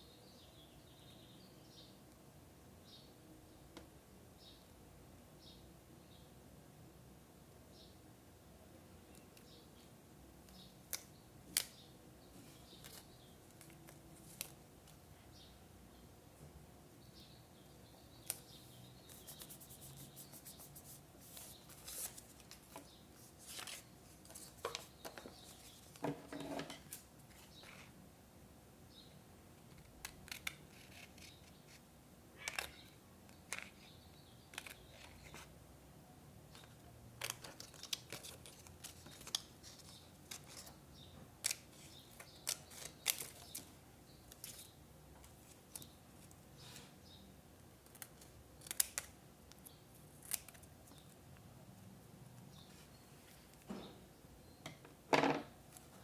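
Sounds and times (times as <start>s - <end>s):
paper rustling: 19.1s - 26.0s
scissors snipping paper: 47.9s - 50.6s.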